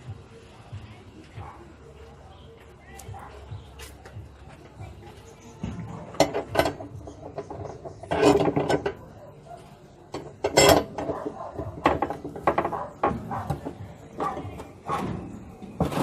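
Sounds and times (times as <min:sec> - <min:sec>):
metal clanks from tools: 0:05.4 - 0:09.2, 0:10.1 - 0:16.0.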